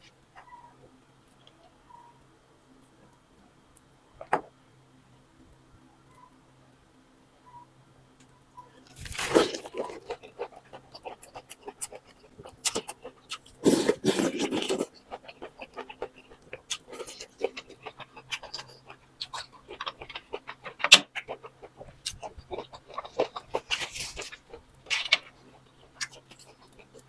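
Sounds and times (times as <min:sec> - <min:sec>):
wet chewing: 0:08.9 - 0:27.0
noodle slurping: 0:09.0 - 0:16.0.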